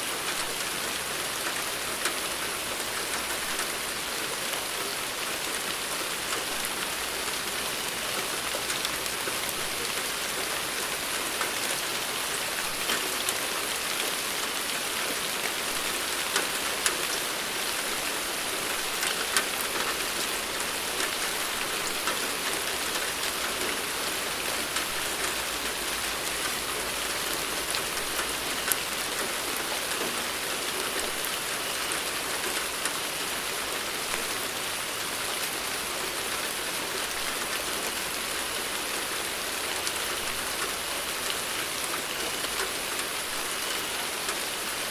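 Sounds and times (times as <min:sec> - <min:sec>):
steady rain hiss: 0:00.0 - 0:44.9
raindrop ticks: 0:00.2 - 0:03.8, 0:05.7 - 0:14.6, 0:15.4 - 0:33.0.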